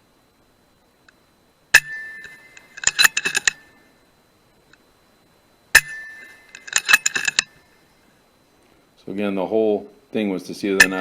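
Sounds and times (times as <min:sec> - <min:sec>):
air rifle shot with metallic ring: 0:01.7 - 0:03.7, 0:05.8 - 0:07.5, 0:10.8 - 0:11.0
metallic clicks: 0:01.8 - 0:03.7, 0:05.8 - 0:07.6, 0:10.8 - 0:11.0.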